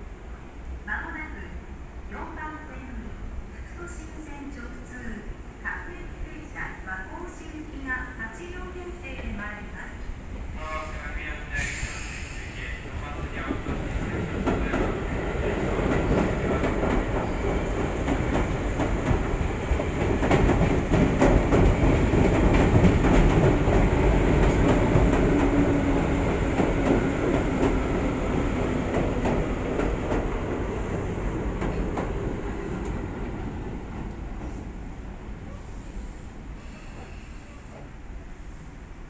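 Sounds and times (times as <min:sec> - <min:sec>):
electric train on rails: 0:03.1 - 0:39.0.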